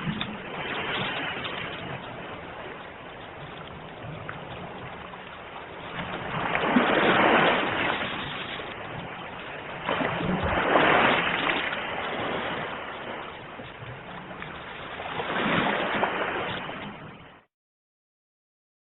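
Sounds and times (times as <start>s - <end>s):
ocean waves washing on shore: 0.0s - 17.5s.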